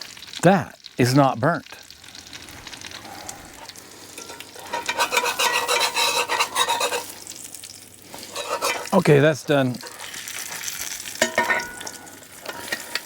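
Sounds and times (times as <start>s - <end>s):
food sizzling in a skillet: 0.0s - 13.0s
spatula scraping a pan: 4.1s - 13.0s.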